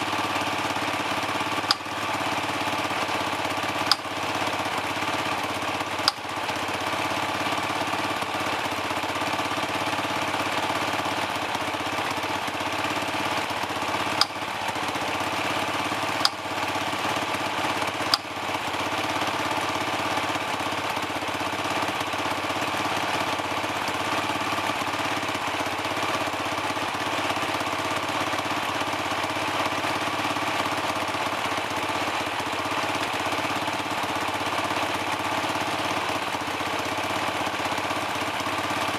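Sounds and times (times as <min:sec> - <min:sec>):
dirt bike engine idling: 0:00.0 - 0:38.9.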